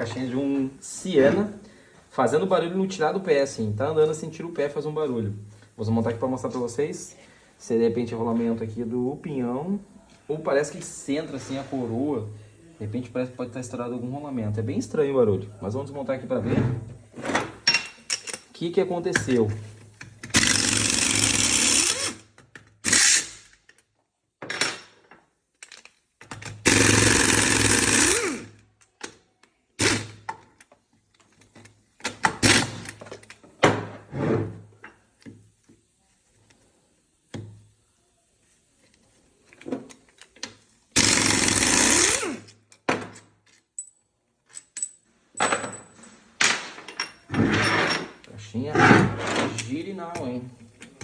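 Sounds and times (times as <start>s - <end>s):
power tool unbolting: 26.6s - 28.5s, 41.0s - 42.5s, 48.8s - 49.7s
metal parts clanking: 42.7s - 51.0s.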